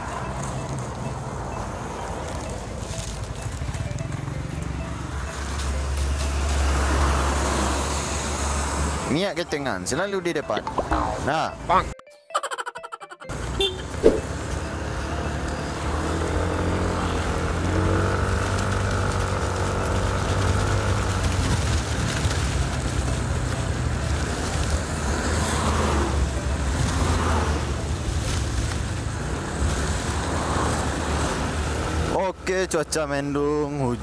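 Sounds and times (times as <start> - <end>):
road noise: 0.0 - 11.9, 13.2 - 34.0
scooter engine running: 13.5 - 29.5.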